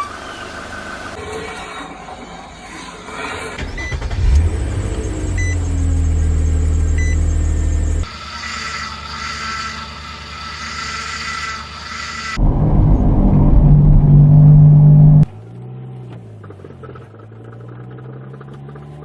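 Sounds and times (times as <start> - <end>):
car engine low rumble: 3.6 - 8.1, 12.4 - 19.0
short high beeps: 7.0 - 7.2
high-pitched whine: 12.3 - 15.3.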